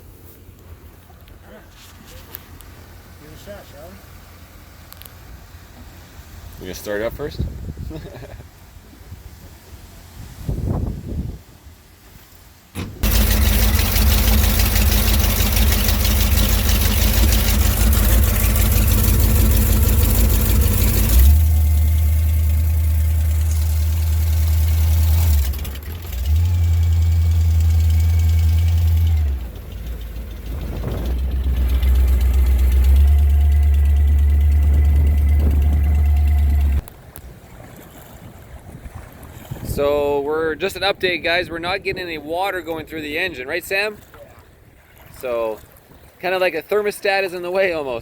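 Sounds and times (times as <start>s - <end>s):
boat engine running loud: 12.8s - 36.9s.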